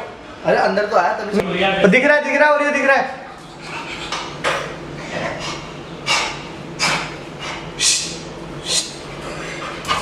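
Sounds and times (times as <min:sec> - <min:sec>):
breathy snorts: 0:05.0 - 0:09.8.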